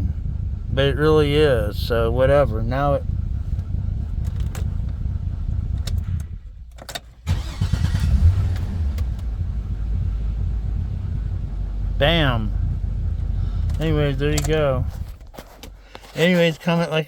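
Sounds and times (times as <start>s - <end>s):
pickup engine idling: 0.0s - 16.2s.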